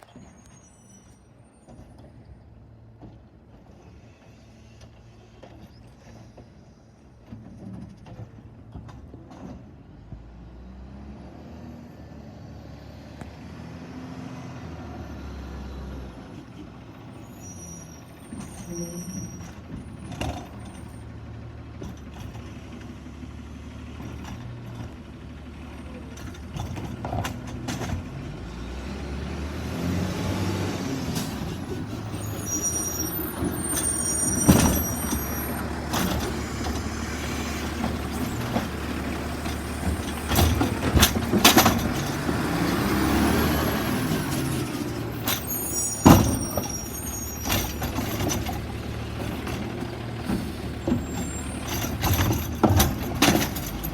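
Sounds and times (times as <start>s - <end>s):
truck engine revving: 23.4s - 53.9s.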